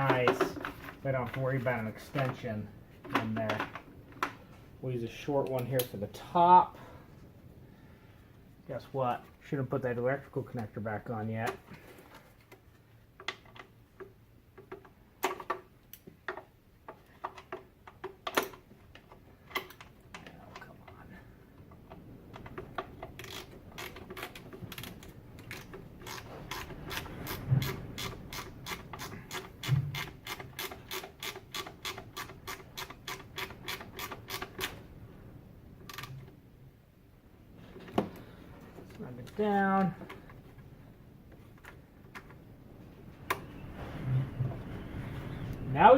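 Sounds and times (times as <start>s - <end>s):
ratchet wrench clicking: 25.5s - 34.7s.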